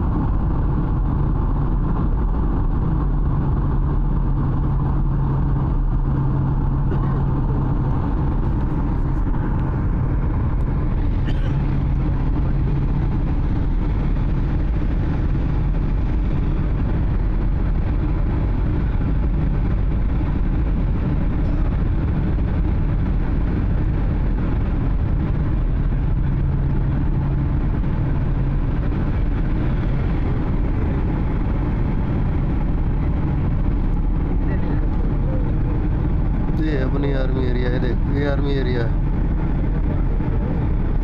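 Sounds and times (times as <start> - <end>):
airliner engine drone: 0.0 - 41.0
low hum: 0.0 - 41.0
rushing air in cabin: 0.0 - 41.0.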